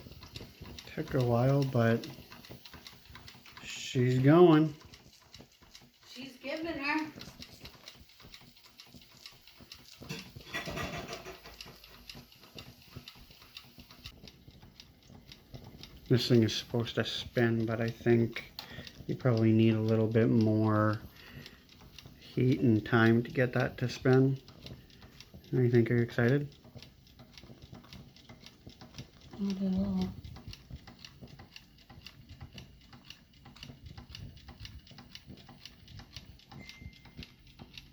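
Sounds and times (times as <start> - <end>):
model steam engine ticking: 0.0 - 37.9.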